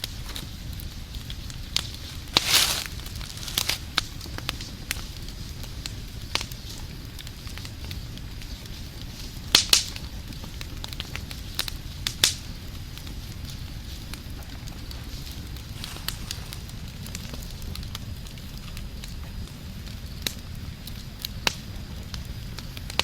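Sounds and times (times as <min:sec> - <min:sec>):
fire popping: 0:00.0 - 0:23.0
wood fire crackling: 0:00.0 - 0:23.0.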